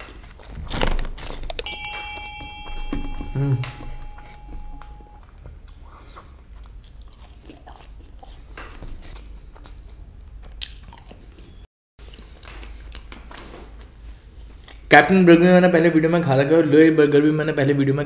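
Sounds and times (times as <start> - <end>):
low steady hum: 1.6 - 5.2
chewing crispy fries: 5.2 - 14.9.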